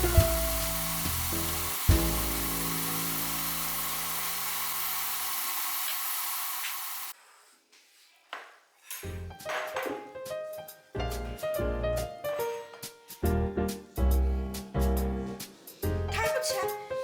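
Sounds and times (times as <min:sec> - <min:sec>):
piano music: 0:00.0 - 0:04.3, 0:09.2 - 0:17.0
oil sizzling in a pan: 0:00.0 - 0:07.2.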